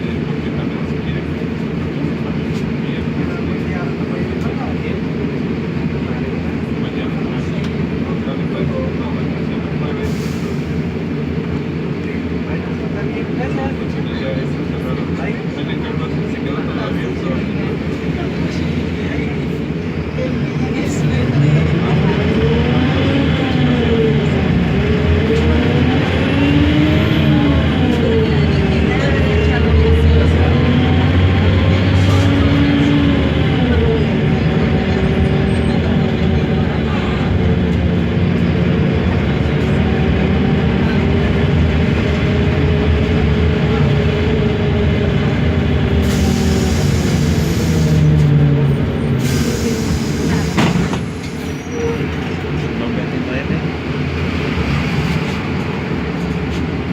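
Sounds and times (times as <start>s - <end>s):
bus diesel engine running: 0.0s - 56.9s.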